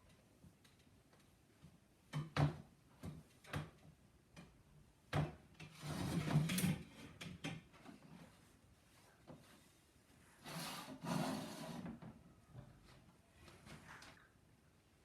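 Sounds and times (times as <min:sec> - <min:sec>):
rubbing or scraping: 0:10.4 - 0:12.0.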